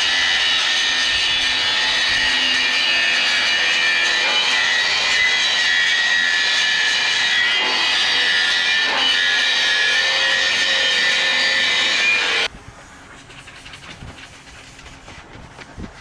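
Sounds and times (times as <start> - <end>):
metalworking tool hissing and whining: 0.0 - 12.5.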